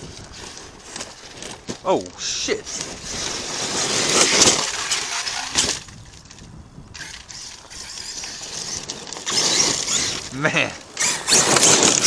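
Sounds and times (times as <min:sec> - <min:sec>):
rolling noise: 0:00.0 - 0:12.0
toy truck crashing over rocks: 0:02.6 - 0:12.0.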